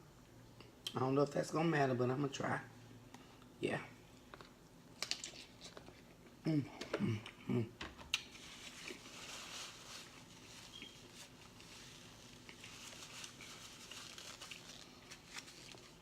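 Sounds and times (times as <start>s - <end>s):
food wrapper crinkling: 5.0s - 6.0s, 8.1s - 16.0s.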